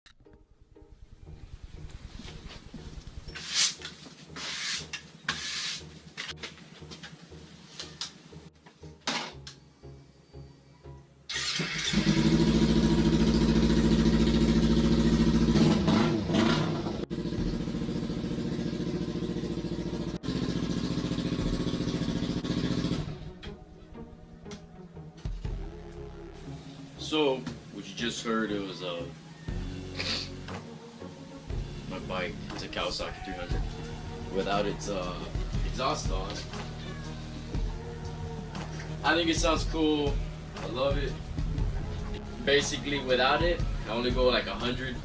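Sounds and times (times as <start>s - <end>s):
motorcycle engine running: 11.8s - 23.5s, 32.8s - 45.0s.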